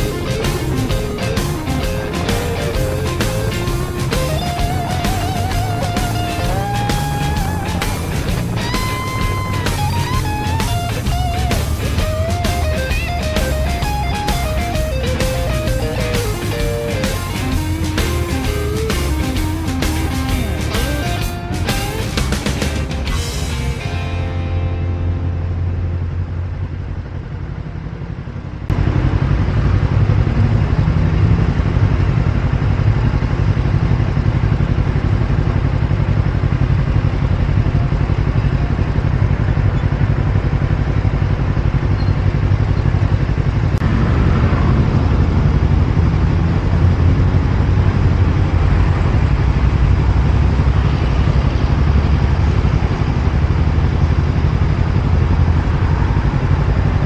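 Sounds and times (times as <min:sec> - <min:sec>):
music: 0:00.0 - 0:26.1
motorbike engine running: 0:00.0 - 0:57.0
wind and road noise: 0:00.0 - 0:57.0.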